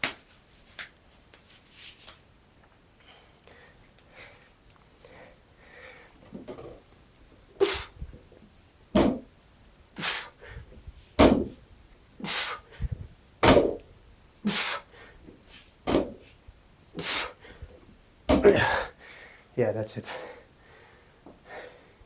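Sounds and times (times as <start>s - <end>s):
man breathing hard: 3.0s - 6.2s, 10.0s - 10.8s, 12.2s - 13.0s, 14.4s - 15.2s, 17.0s - 17.8s, 18.4s - 22.0s.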